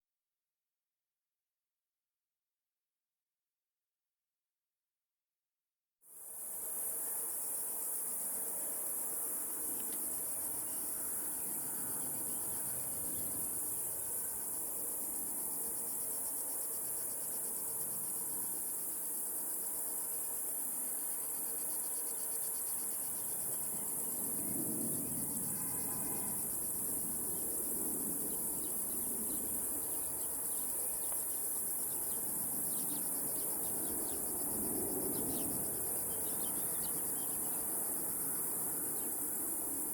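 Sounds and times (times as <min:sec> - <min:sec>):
cicadas buzzing: 0:06.7 - 0:39.9
bird chirping: 0:31.9 - 0:34.4, 0:35.1 - 0:37.6.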